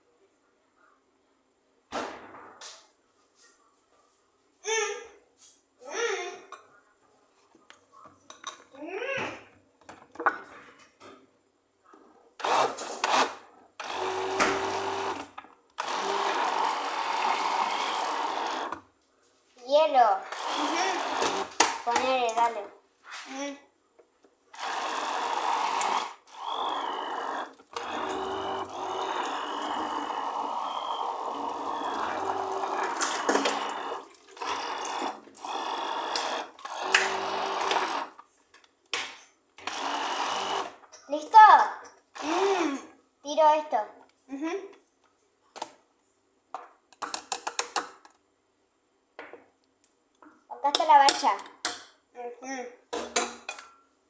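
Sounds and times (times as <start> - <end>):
electric blender running: 12.4 - 18.8, 20.3 - 21.8, 24.5 - 38.2, 39.6 - 40.8, 42.2 - 42.8.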